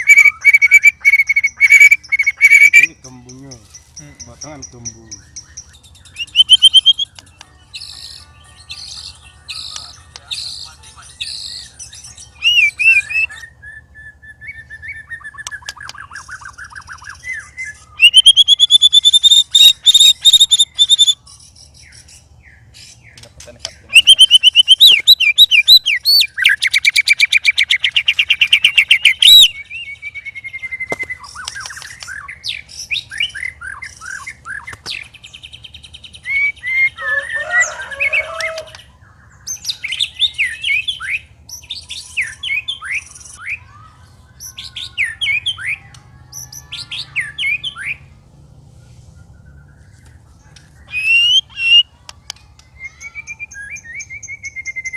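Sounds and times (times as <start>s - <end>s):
bird singing whistled phrases: 0.0s - 2.9s, 5.6s - 7.2s, 12.4s - 22.0s, 23.9s - 34.7s, 50.8s - 51.9s, 52.8s - 54.9s.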